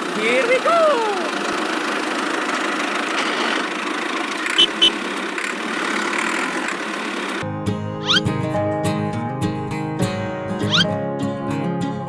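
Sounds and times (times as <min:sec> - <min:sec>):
short high chirps: 0:04.6 - 0:05.0, 0:08.0 - 0:08.3, 0:10.7 - 0:10.9.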